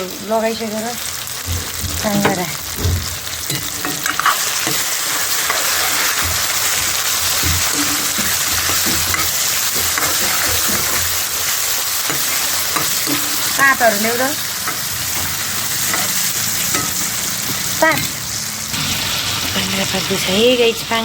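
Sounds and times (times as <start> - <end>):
gizzards sizzling in a pan: 0.0 - 21.0
stirring knocks: 1.4 - 18.3.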